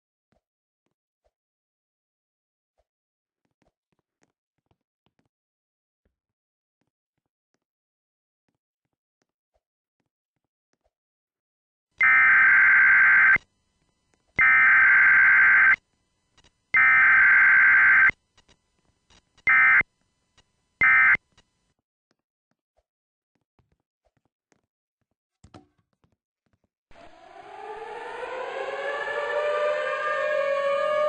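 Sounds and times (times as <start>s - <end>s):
electronic alarm beeping: 12.0s - 13.4s, 14.4s - 15.8s, 16.8s - 18.1s, 19.5s - 19.8s, 20.8s - 21.2s.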